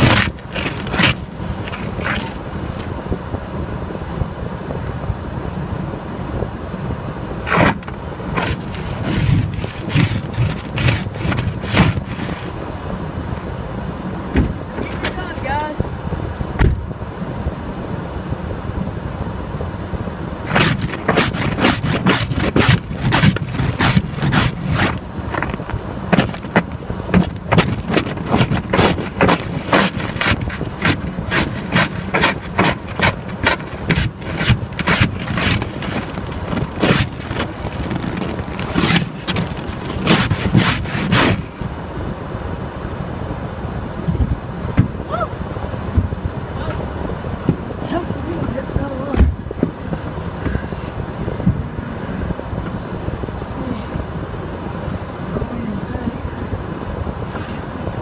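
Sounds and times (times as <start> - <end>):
ice scraper scraping windshield: 0.0 - 2.9, 7.5 - 12.6, 20.5 - 41.7.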